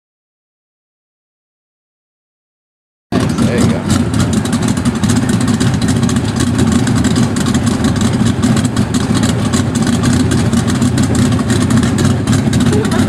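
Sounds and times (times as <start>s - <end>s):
car engine running: 3.1s - 13.0s.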